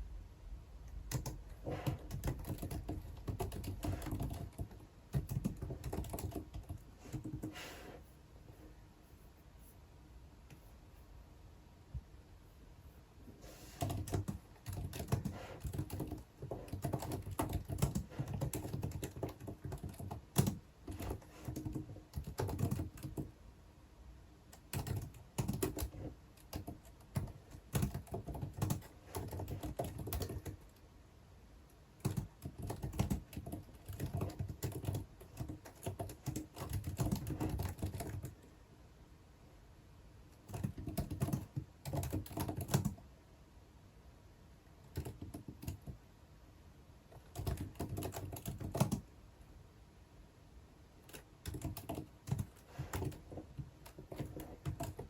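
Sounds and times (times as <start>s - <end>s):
typing on computer keyboard: 0.9s - 7.6s, 13.7s - 23.3s, 24.5s - 30.8s, 32.0s - 38.5s, 40.3s - 43.0s, 44.8s - 46.0s, 47.1s - 49.1s, 51.0s - 55.0s.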